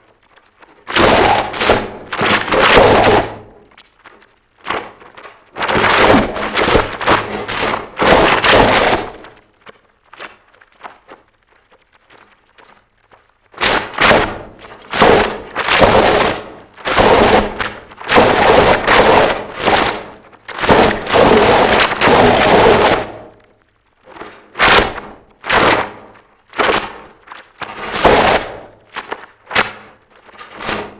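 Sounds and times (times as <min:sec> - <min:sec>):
faint crackle: 0:00.0 - 0:30.9
distorted noise music blasts: 0:00.9 - 0:03.8, 0:04.8 - 0:09.4, 0:13.6 - 0:23.5, 0:24.2 - 0:30.9.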